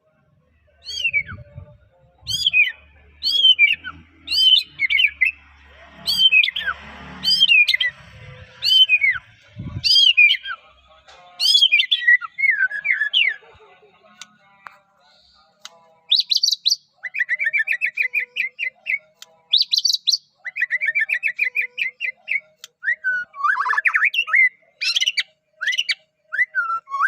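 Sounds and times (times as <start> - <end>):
bird singing whistled phrases: 0.8 - 1.6, 2.3 - 5.4, 8.6 - 10.6, 11.4 - 13.4, 16.1 - 27.0.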